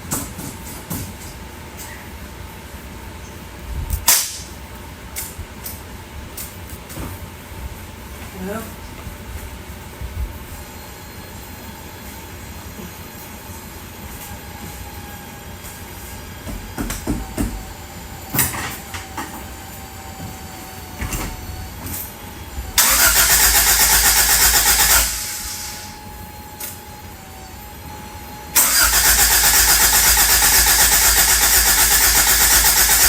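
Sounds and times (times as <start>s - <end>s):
starter motor cranking engine: 22.8s - 25.9s, 28.6s - 33.0s.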